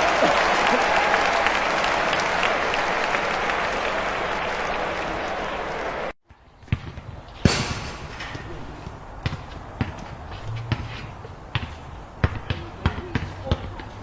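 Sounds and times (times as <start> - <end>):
crowd applause: 0.0 - 6.2
basketball bouncing: 6.6 - 14.0.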